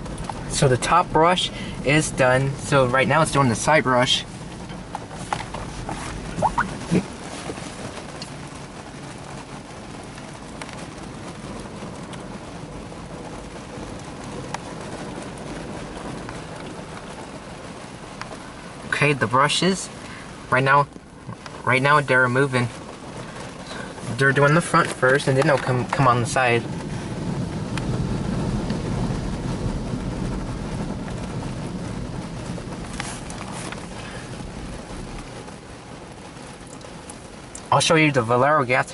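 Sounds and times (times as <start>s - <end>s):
water spraying: 0.9s - 9.1s, 32.2s - 38.2s
car wash brushes scrubbing: 3.1s - 7.9s, 32.8s - 35.5s.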